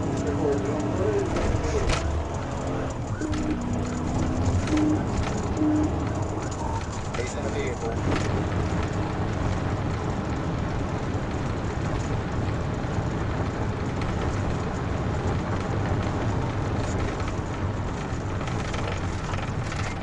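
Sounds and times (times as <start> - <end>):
car engine: 0.0 - 20.0
road noise: 0.0 - 20.0.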